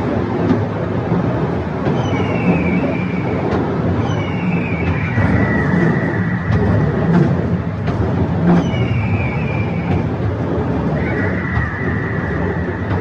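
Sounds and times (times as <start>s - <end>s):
wheels rumbling on rails: 0.0s - 13.0s
higher gliding squeal: 2.0s - 13.0s
high metallic squeal: 4.0s - 10.2s.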